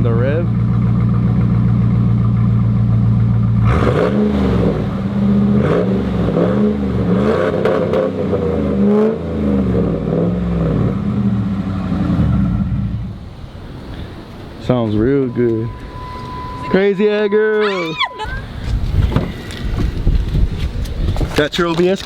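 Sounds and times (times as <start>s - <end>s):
engine idling and revving: 0.0s - 14.3s.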